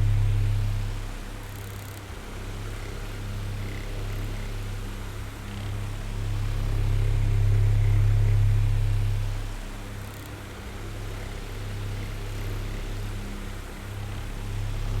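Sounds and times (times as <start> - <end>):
electric fan running: 0.0 - 1.4.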